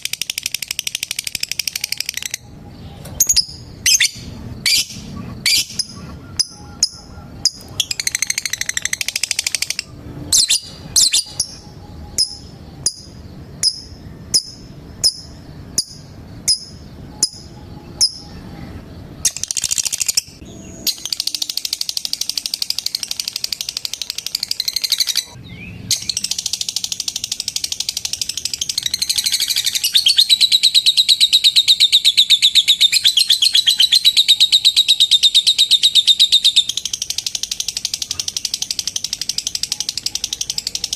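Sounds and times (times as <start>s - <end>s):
lovebird chirping and trilling: 0.0s - 40.9s.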